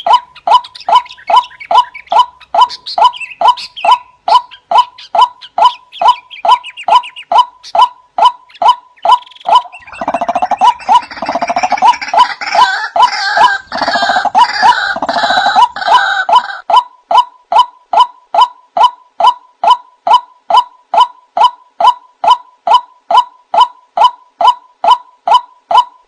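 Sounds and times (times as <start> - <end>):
rattling bird chorus: 8.5 - 16.6.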